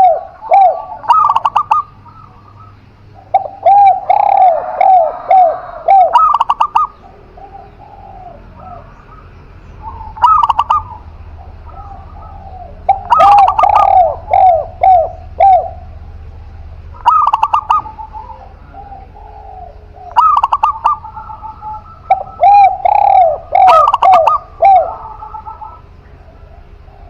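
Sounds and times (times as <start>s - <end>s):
doves cooing: 0.0s - 27.0s.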